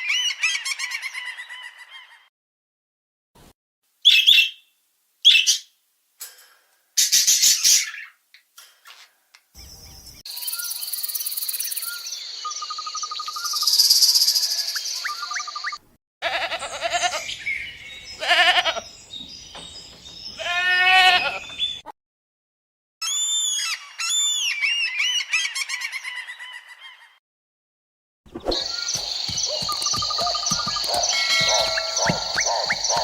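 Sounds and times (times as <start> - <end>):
high repeated animal calls: 28.6 - 33.0
rapid high chirps: 28.6 - 33.0.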